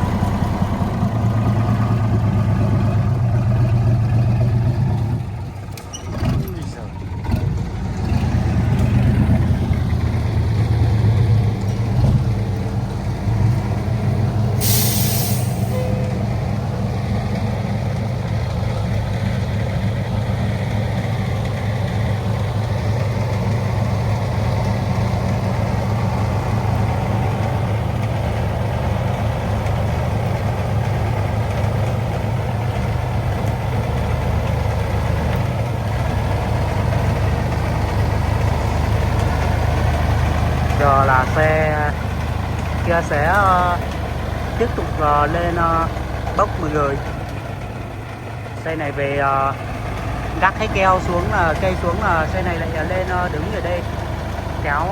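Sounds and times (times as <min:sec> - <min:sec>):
truck engine running: 0:00.0 - 0:54.9
air brake hiss: 0:14.6 - 0:15.9.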